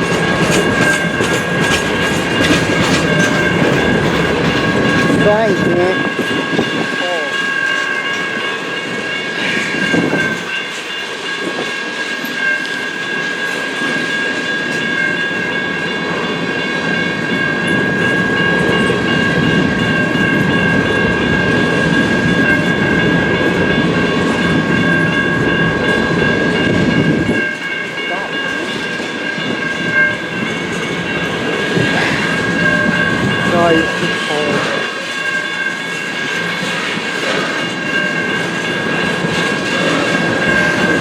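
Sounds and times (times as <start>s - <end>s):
freight train wheels clicking: 0.0s - 41.0s
train low rumble: 0.0s - 41.0s
high ringing tone: 4.6s - 37.0s.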